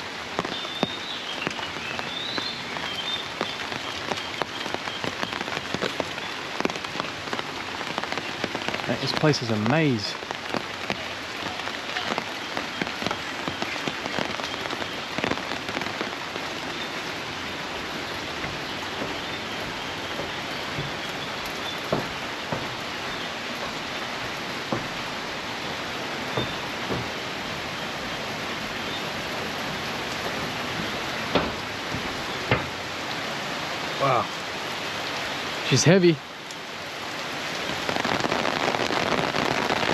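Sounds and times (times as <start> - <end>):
heavy rain pattering: 0.0 - 39.9
drips and taps: 16.6 - 33.2.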